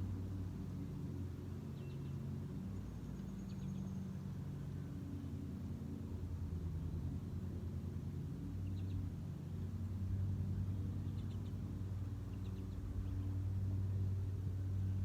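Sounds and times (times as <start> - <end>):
low mechanical hum: 0.0 - 15.0
faint bird chirps: 1.8 - 4.3.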